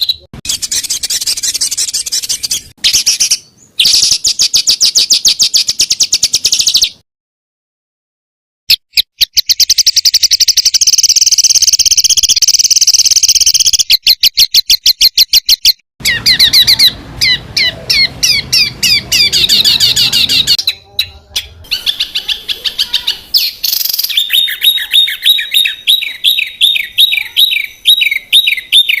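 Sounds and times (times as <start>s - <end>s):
songbirds trilling and chipping: 9.3s - 29.0s.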